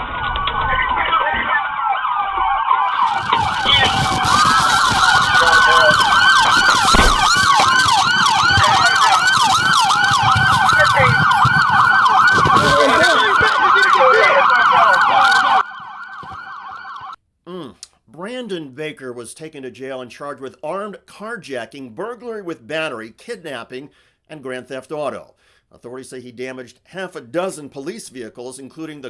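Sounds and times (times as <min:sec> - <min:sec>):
police sirens wailing and yelping: 0:00.2 - 0:17.2.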